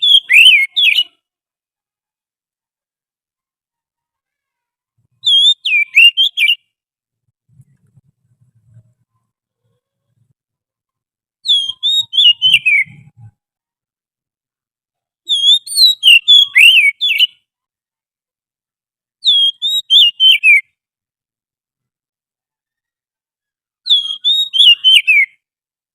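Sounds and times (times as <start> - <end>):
bird whistling song: 0.0 - 1.2, 5.2 - 6.7, 11.4 - 13.3, 15.3 - 17.4, 19.2 - 20.8, 23.9 - 25.4.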